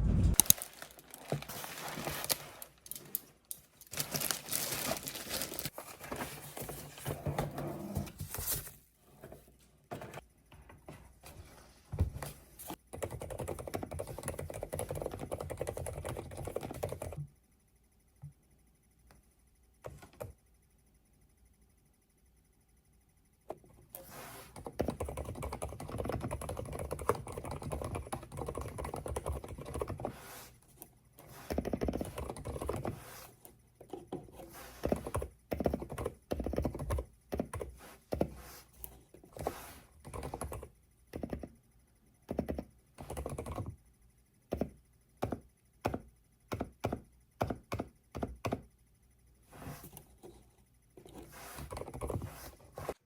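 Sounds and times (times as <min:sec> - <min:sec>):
mechanical keyboard typing: 0:12.9 - 0:17.2, 0:24.6 - 0:30.1, 0:31.5 - 0:33.0, 0:34.8 - 0:37.7, 0:40.1 - 0:41.5, 0:42.3 - 0:43.8, 0:51.7 - 0:52.3.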